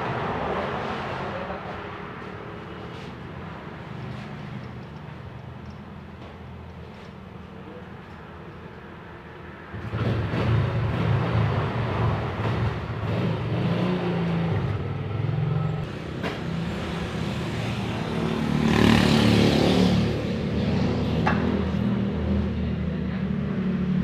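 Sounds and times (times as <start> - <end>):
motorcycle engine starting and revving: 9.7 - 22.6.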